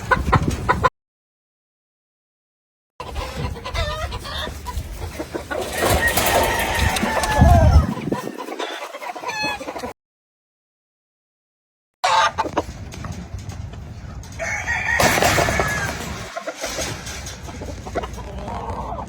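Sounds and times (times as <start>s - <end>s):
chickens: 0.0s - 0.9s, 3.0s - 10.0s, 12.0s - 19.0s
rooster crowing: 6.0s - 7.8s, 14.4s - 16.0s.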